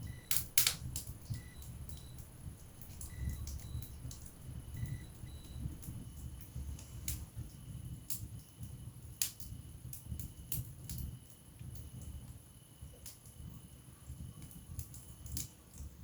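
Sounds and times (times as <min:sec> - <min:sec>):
logs crackling and popping: 0:00.0 - 0:06.5
fire flames rumbling: 0:00.0 - 0:16.0.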